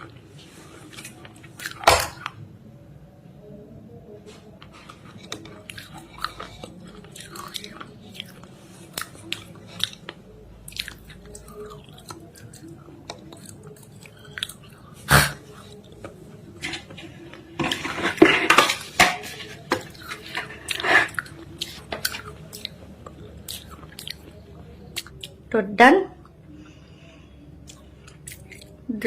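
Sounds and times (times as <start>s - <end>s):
chewing something crunchy: 0.0s - 2.4s, 4.6s - 16.2s, 19.3s - 25.4s, 27.6s - 28.8s.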